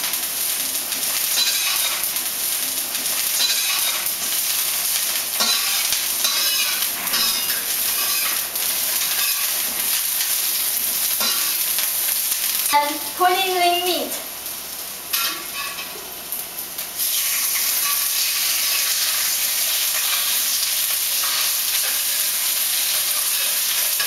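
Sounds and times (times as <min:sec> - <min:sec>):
onions sizzling in oil: 0:00.0 - 0:24.0
spatula scraping wok: 0:01.2 - 0:02.1, 0:05.4 - 0:09.9, 0:15.1 - 0:16.0, 0:17.2 - 0:24.0.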